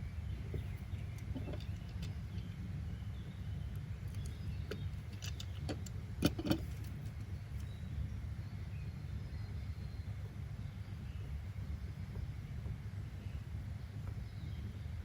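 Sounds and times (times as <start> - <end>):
low background rumble: 0.0 - 15.0
light clicks and knocks: 0.5 - 2.5, 3.7 - 7.7.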